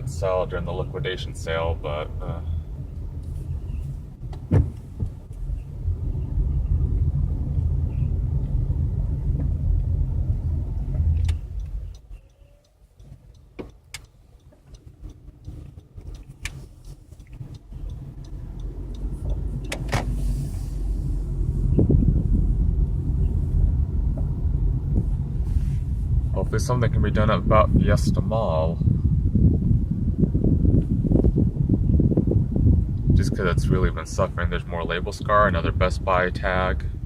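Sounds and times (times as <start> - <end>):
car engine and road noise: 0.0 - 37.0
sharp clicks: 11.0 - 20.0.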